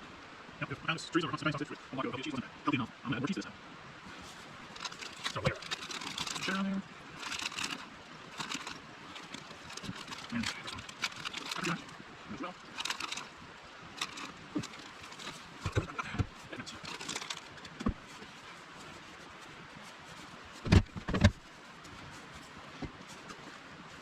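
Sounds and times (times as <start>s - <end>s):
cooking gear clicks and knocks: 4.7s - 12.0s, 12.6s - 13.3s, 14.0s - 18.1s.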